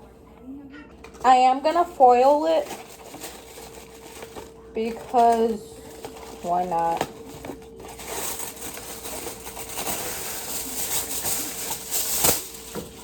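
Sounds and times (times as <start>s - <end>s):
aluminium foil crinkling: 1.0s - 13.0s.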